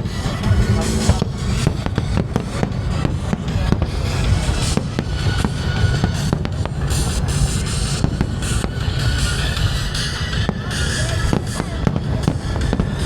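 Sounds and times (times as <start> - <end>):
deep rumble: 0.0 - 4.8
fireworks bangs and cracks: 0.0 - 13.0.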